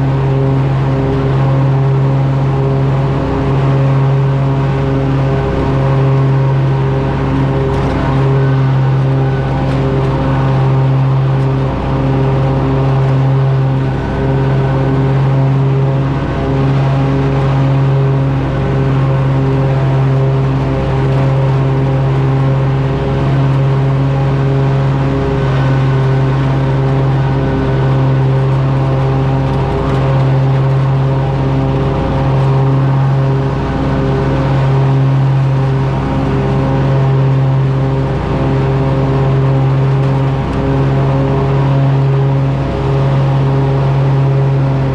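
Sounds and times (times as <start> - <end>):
riding mower engine running: 0.0 - 44.9.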